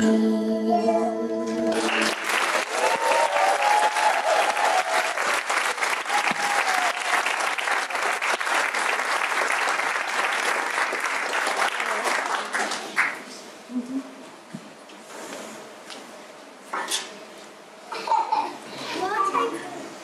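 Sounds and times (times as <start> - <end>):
audience cheering: 1.7 - 12.0
audience applause: 1.7 - 13.3.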